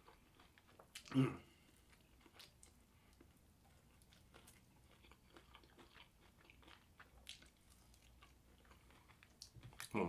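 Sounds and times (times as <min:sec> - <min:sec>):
faint chewing and crunching: 0:00.0 - 0:10.0.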